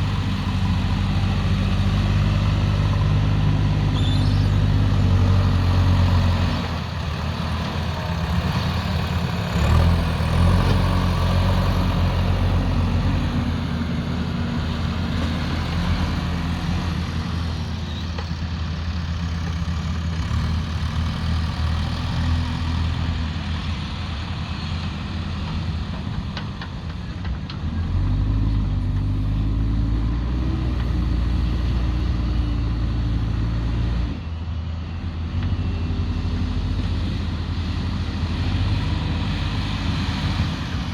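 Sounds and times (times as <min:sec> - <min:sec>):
heavy diesel engine revving: 0:00.0 - 0:17.8, 0:36.0 - 0:40.9.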